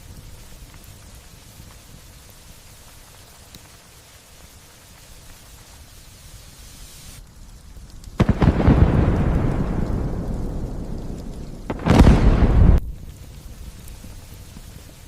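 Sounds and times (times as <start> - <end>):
light rain hissing: 0.0 - 15.0
thunder clap rumbling: 8.2 - 13.5.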